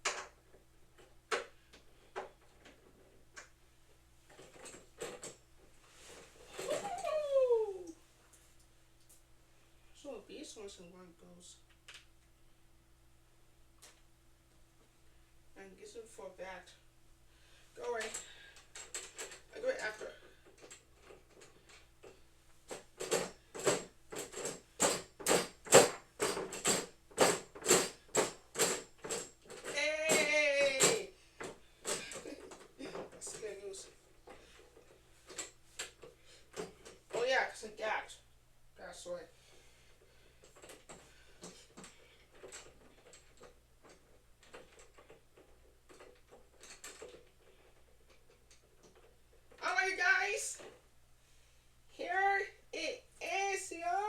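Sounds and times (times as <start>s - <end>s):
equipment parts clicking and tapping: 20.4s - 37.2s.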